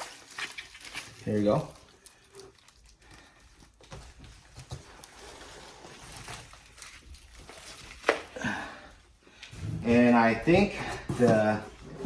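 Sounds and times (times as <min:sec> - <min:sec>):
packing peanuts rustling: 0:00.0 - 0:08.6.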